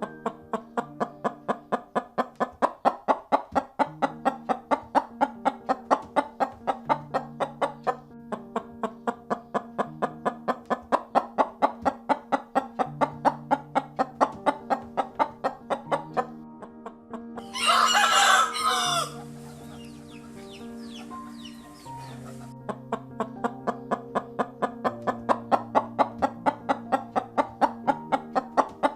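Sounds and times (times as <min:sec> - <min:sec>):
background music: 0:00.0 - 0:28.9
rooster crowing: 0:17.4 - 0:19.3.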